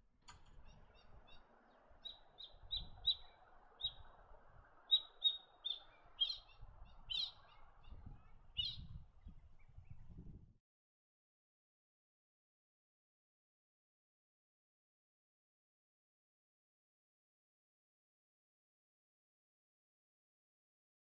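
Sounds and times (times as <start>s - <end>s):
bird chirping: 0.5s - 10.1s.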